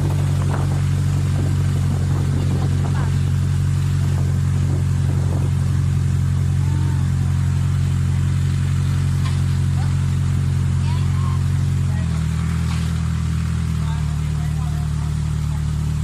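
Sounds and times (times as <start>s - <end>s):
boat engine droning: 0.0s - 16.0s
faint voices: 9.6s - 12.9s.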